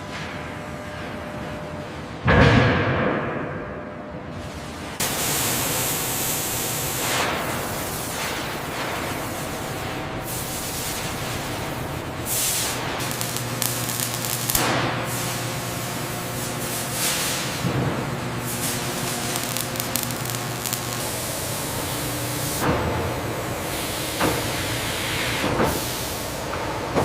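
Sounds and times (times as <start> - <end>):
spraying hiss rushes: 5.0 - 22.6
steady industrial hiss: 5.0 - 27.0
faint hum: 8.5 - 24.0.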